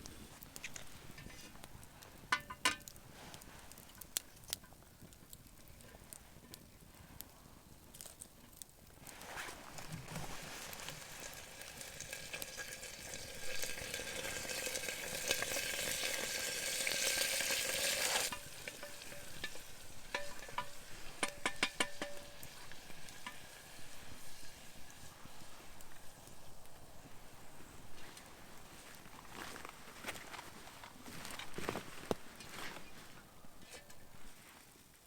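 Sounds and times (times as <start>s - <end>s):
food sizzling in a pot: 9.0s - 28.2s.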